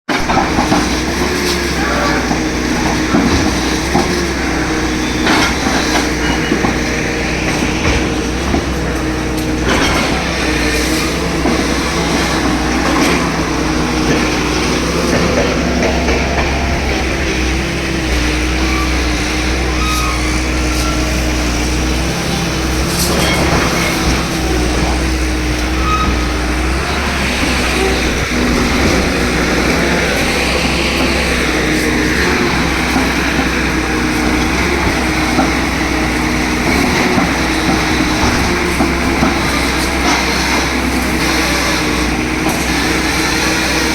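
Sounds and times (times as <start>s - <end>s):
heavy machinery engine running: 0.1s - 43.9s
knocks and bangs: 0.2s - 19.8s.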